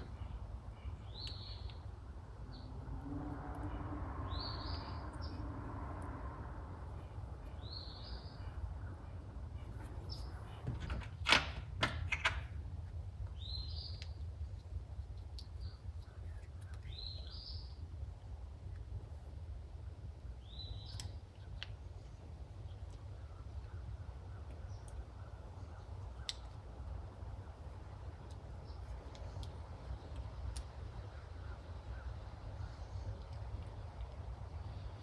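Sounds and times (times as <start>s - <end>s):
bird chirping: 0.0s - 2.9s, 3.6s - 5.6s, 6.9s - 10.9s, 13.2s - 14.6s, 15.4s - 17.8s, 20.3s - 26.6s
steady low hum: 0.0s - 11.8s.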